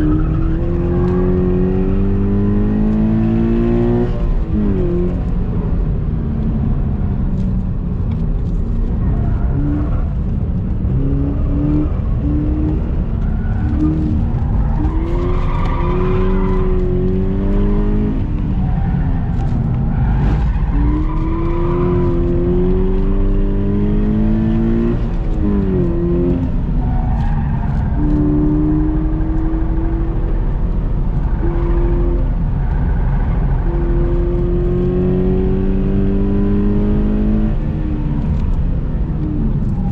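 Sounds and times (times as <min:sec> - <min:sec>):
car engine revving through gears: 0:00.0 - 0:39.9
road and wind rumble: 0:00.0 - 0:39.9.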